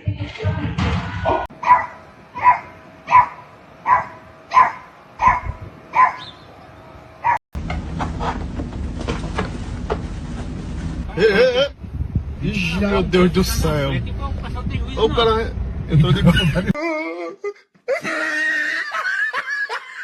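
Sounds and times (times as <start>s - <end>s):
steady low rumble: 0.0s - 16.8s
dog barking: 1.6s - 6.3s.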